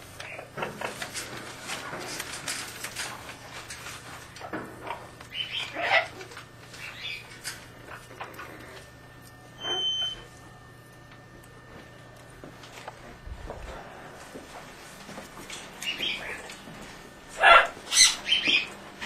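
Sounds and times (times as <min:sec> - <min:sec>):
pet birds chirping: 0:00.2 - 0:00.5, 0:05.0 - 0:07.6, 0:15.7 - 0:16.7, 0:17.4 - 0:18.9.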